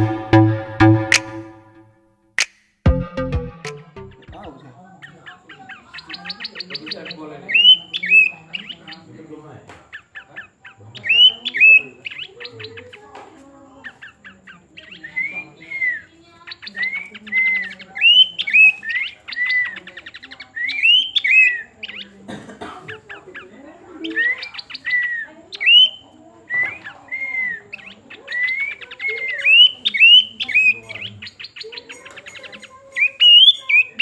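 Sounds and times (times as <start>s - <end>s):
bird rattling chatters: 23.0s - 34.0s.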